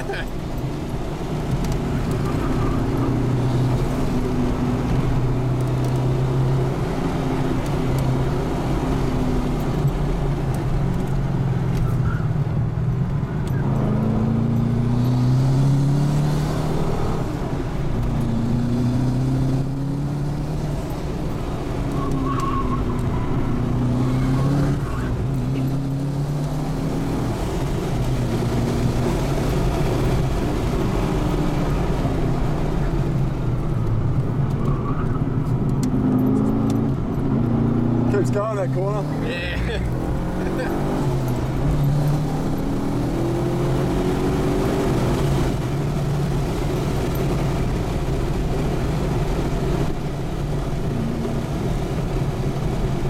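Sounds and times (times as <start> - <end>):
car engine revving under acceleration: 0.0 - 53.0.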